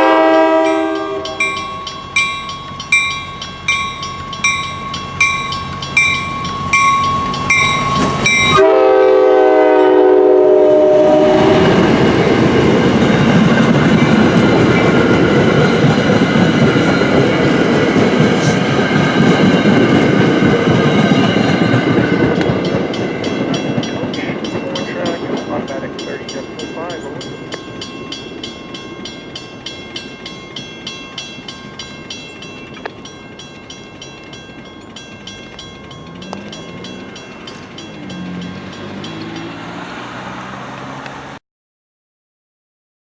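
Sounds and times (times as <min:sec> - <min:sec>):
train horn chord: 0:00.0 - 0:01.8, 0:08.2 - 0:12.0
railroad crossing bell ringing: 0:00.0 - 0:41.3
train wheels rumbling and clattering: 0:00.1 - 0:08.6, 0:11.4 - 0:41.4.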